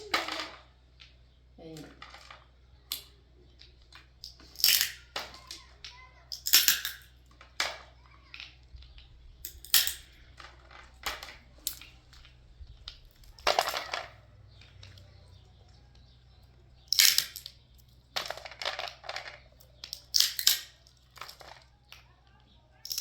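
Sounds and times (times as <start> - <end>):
hard objects knocking and clattering: 0.0 - 23.0.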